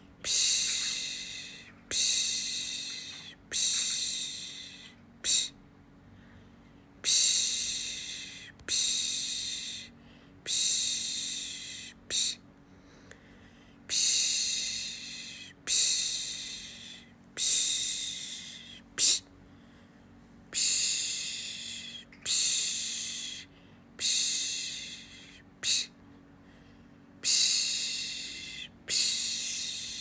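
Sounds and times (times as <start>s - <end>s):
woman shushing: 0.3s - 5.6s, 10.5s - 12.4s, 13.9s - 19.3s.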